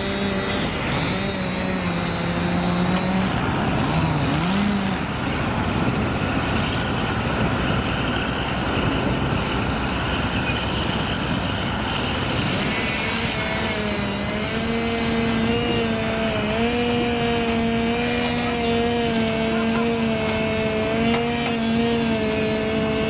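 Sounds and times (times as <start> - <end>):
heavy truck engines running: 0.0 - 23.0.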